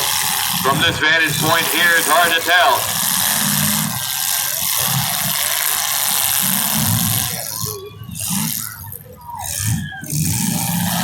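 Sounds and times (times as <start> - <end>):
noisy din: 0.0 - 5.2
car engines revving: 0.0 - 11.0.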